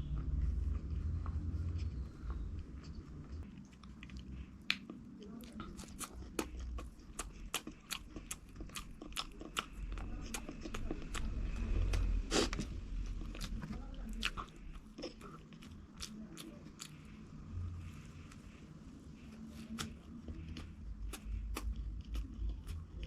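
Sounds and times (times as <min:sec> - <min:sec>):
person chewing crunchy food: 0:00.0 - 0:18.5, 0:19.2 - 0:23.0.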